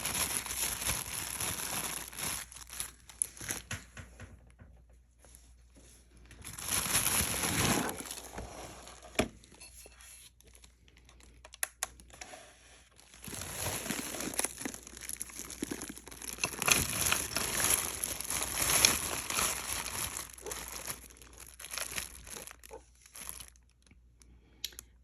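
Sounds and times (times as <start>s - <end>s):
bag crinkling and rustling: 0.0s - 3.8s, 6.1s - 9.6s, 12.9s - 23.9s.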